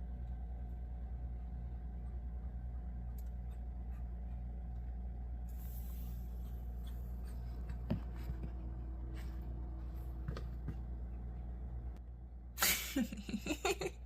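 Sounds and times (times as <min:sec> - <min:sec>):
refrigerator humming: 0:00.0 - 0:14.0
breathy hiss: 0:05.5 - 0:07.2.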